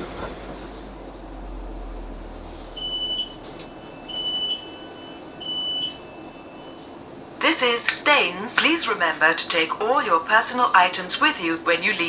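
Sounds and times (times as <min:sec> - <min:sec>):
low train rumble: 0:00.0 - 0:12.0
train door warning beeps: 0:02.2 - 0:09.3.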